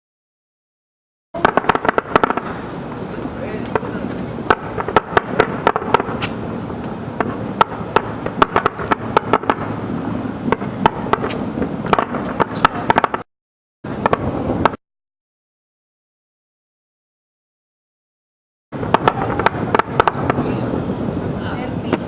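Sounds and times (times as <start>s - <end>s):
continuous rumble: 1.4s - 13.2s, 13.9s - 14.8s, 18.8s - 22.0s
fireworks bangs and cracks: 1.4s - 13.3s, 13.9s - 14.8s, 18.8s - 22.0s.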